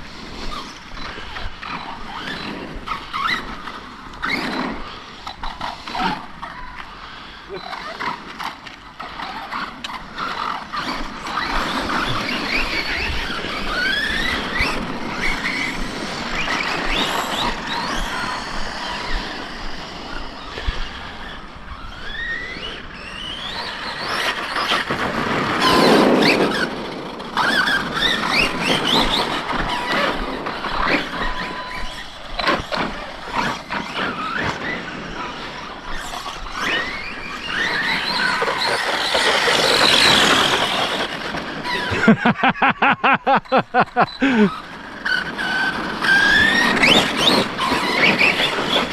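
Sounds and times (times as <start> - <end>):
electric motors whining: 25.6 - 48.9.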